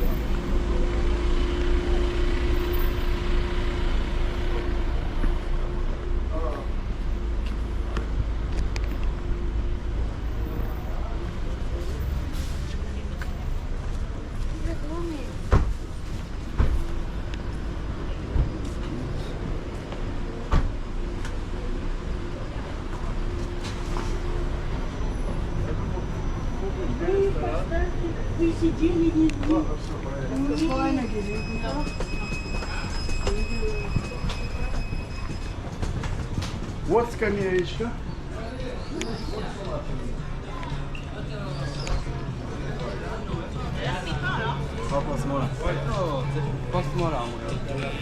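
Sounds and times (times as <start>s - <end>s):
heavy low rumble: 0.0s - 30.0s
street background noise: 0.0s - 48.0s.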